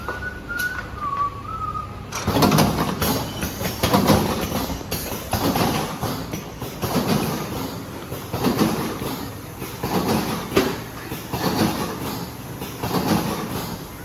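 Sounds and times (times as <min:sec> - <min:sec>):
wavering whistle-like tone: 0:00.0 - 0:02.0
machine mechanical clatter: 0:02.1 - 0:14.0.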